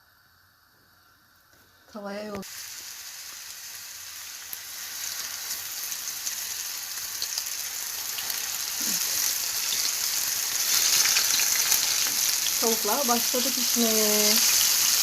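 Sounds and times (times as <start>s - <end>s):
chicken sizzling in hot oil: 2.0s - 15.0s.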